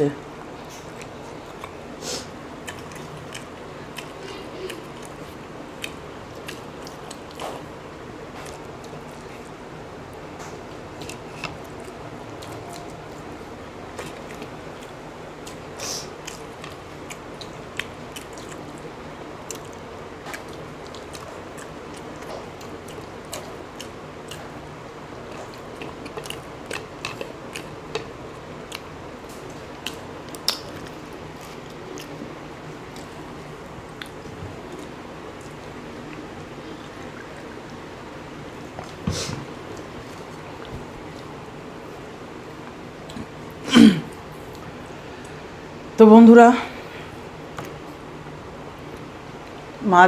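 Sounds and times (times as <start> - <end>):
steady background hum: 0.0 - 50.0
people chewing: 0.3 - 45.6
mouth smacks and clicks: 29.8 - 30.9.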